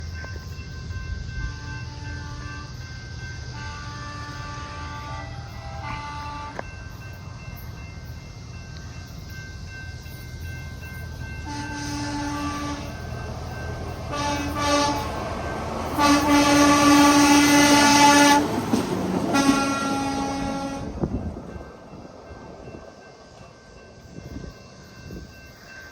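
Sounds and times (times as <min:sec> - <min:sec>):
vehicle rumbling on rails: 0:00.0 - 0:25.9
truck horn blasts: 0:03.6 - 0:06.6, 0:11.4 - 0:12.9, 0:14.1 - 0:15.2, 0:15.9 - 0:18.6, 0:19.3 - 0:21.1.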